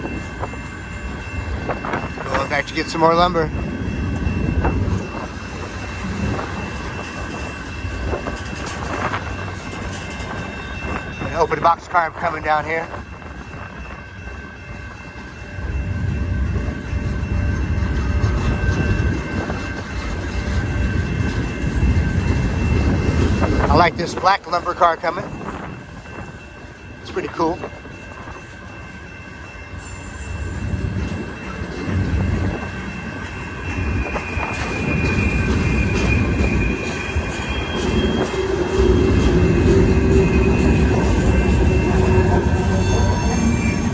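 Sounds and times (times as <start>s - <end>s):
steady high tone: 0.0s - 43.9s
train wheels rumbling on rails: 0.0s - 43.9s
train wheels squealing: 27.4s - 43.9s.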